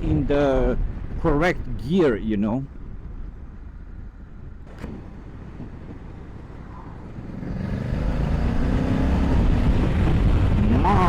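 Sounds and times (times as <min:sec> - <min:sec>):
motorcycle engine accelerating: 0:04.4 - 0:11.0.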